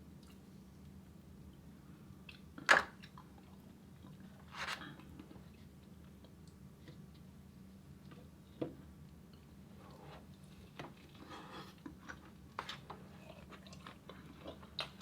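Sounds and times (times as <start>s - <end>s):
low steady hum: 0.0s - 15.0s
person chewing: 13.1s - 15.0s.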